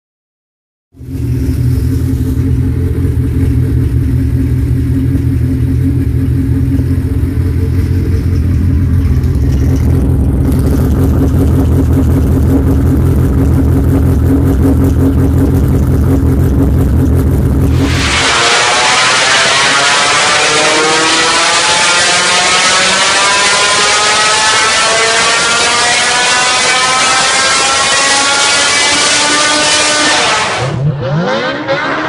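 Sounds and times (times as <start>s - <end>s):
four-cylinder engine idling: 1.0s - 17.7s.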